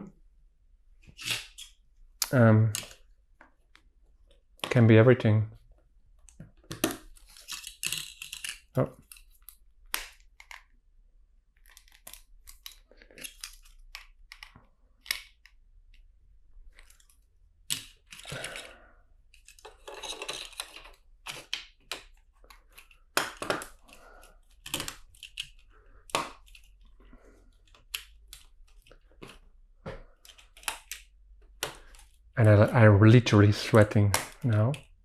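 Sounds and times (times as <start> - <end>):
plastic bricks clicking: 6.2 - 10.7, 16.7 - 26.9
rustling of plastic pieces: 6.8 - 9.6, 17.8 - 29.5.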